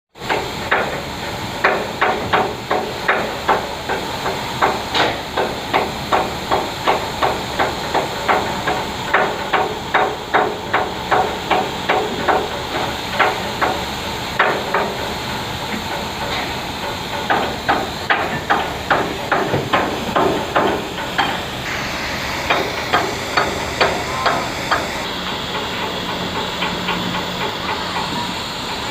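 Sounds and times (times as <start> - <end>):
hammers striking steel: 0.2 - 13.8, 14.4 - 15.0, 15.8 - 21.5, 22.4 - 27.5
steady hiss: 0.3 - 28.9
machine hum: 10.0 - 28.9.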